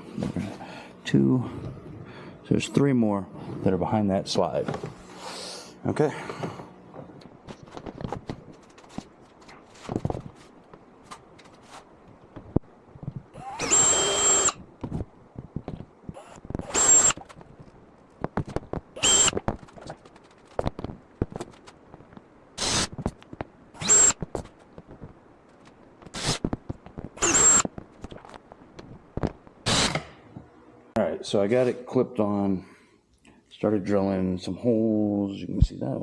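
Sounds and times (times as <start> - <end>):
cordless drill whine: 13.4 - 14.6, 16.2 - 17.2, 19.0 - 19.4, 22.6 - 22.9, 23.8 - 24.3, 26.1 - 26.5, 27.2 - 27.7, 29.7 - 30.0.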